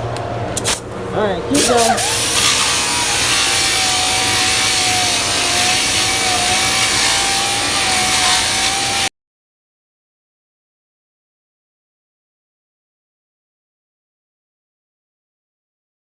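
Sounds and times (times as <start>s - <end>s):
power grinder grinding filler: 1.6s - 9.1s.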